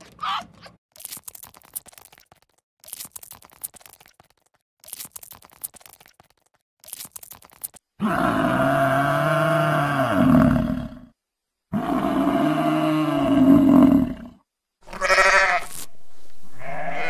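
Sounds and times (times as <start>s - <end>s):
dry crackling and crunching: 0.0s - 7.8s.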